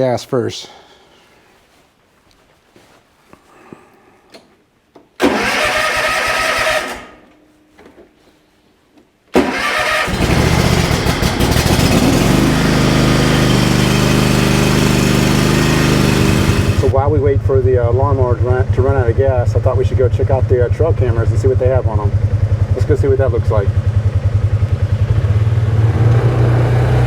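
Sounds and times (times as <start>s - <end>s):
lawnmower engine starting and running: 5.2s - 7.3s, 9.3s - 27.0s.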